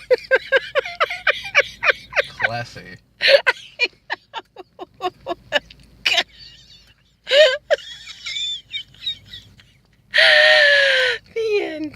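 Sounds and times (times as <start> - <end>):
people laughing: 0.0 - 5.6.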